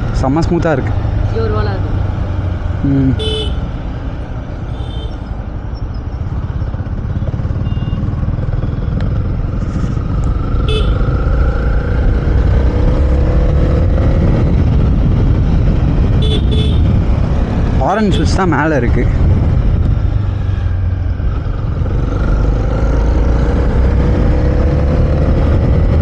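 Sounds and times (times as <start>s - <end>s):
motorcycle engine: 0.0s - 26.0s
wind and road rumble: 0.0s - 26.0s.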